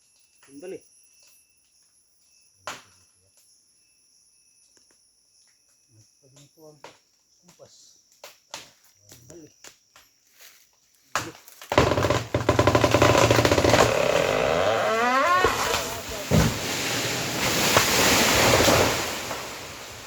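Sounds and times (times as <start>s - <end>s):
tree trunk cracking: 11.1s - 20.0s
branches crashing rustle: 11.4s - 20.0s
heavy thud of falling tree: 11.7s - 20.0s
tree creaking groan: 11.7s - 20.0s.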